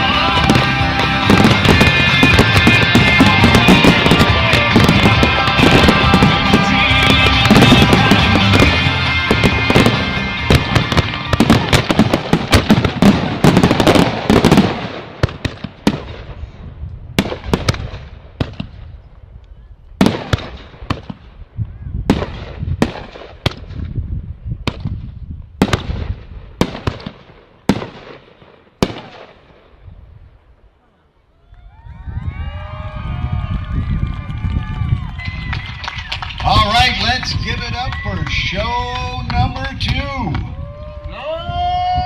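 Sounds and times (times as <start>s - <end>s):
loud firework shell reports: 0.0s - 16.6s, 36.4s - 40.6s
fireworks bursts and crackle: 0.0s - 19.1s, 20.0s - 30.5s, 32.5s - 42.0s.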